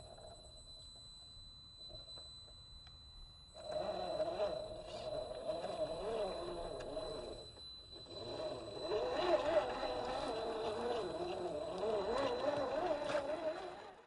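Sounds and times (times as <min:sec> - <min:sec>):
electric motor whining: 0:03.6 - 0:14.0.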